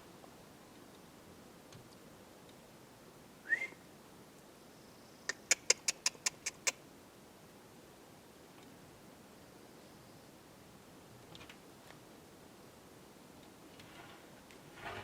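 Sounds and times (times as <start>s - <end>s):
animal whistle and sharp chips: 3.5s - 3.8s.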